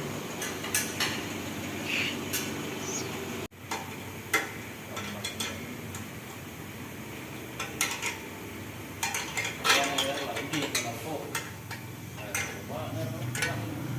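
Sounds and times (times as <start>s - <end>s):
metal tools clinking on metal: 9.0s - 13.7s.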